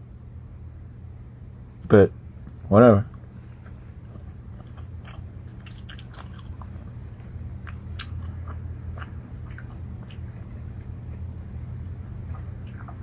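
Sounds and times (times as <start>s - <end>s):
person chewing crunchy snack: 3.1s - 11.2s, 11.8s - 13.0s.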